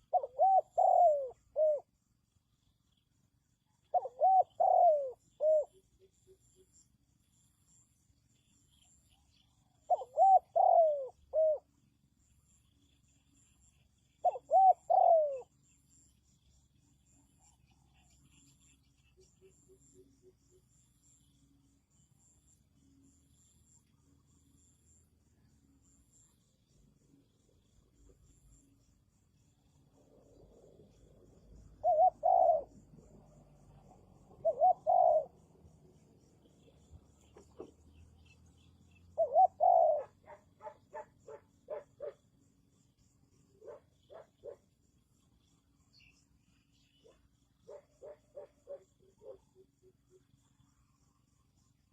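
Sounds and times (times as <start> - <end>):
dove cooing: 0.0 - 1.9, 3.8 - 5.8, 9.8 - 11.7, 14.2 - 15.6, 31.5 - 35.5, 37.2 - 42.2, 43.6 - 44.6, 47.0 - 49.7.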